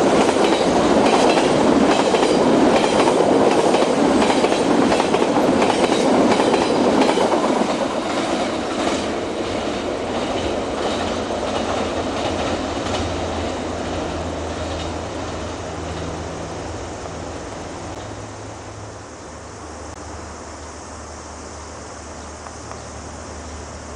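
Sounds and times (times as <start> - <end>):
train wheels clicking over rail joints: 0.0 - 16.3.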